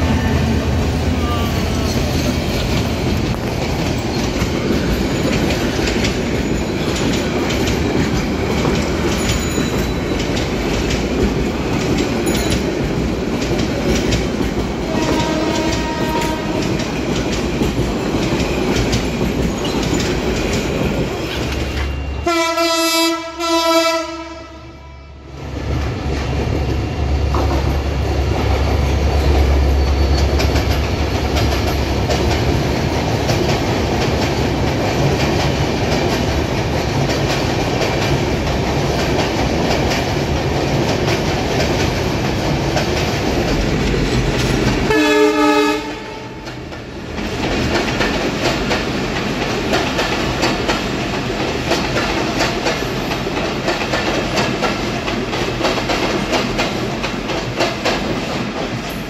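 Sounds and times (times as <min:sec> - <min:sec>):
trains rumbling past: 0:00.0 - 0:59.0
locomotive air horn blasts: 0:14.9 - 0:16.6, 0:22.2 - 0:25.2, 0:44.9 - 0:46.4.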